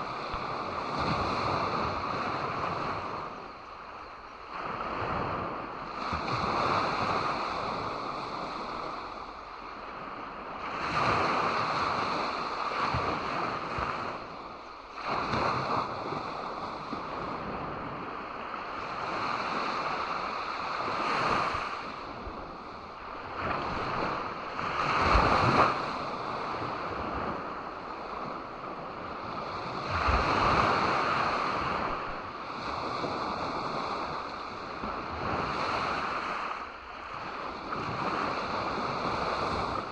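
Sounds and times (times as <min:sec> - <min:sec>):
ocean waves breaking on beach: 0:00.0 - 0:39.9
wind rumble on microphone: 0:00.0 - 0:39.9.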